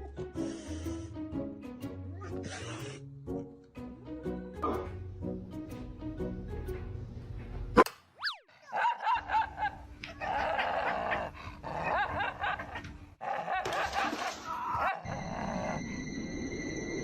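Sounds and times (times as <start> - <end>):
steady high tone: 15.1 - 17.0.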